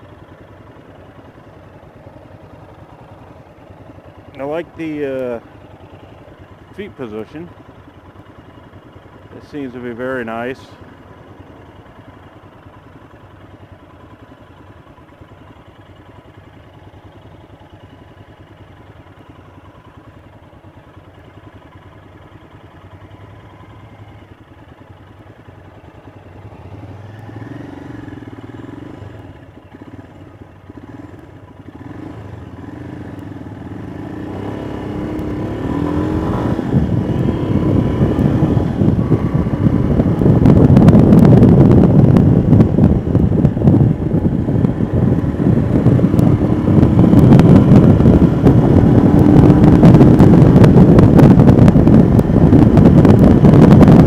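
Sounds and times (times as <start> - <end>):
motorcycle engine running: 0.0 - 54.0
wind rushing on microphone: 33.9 - 54.0.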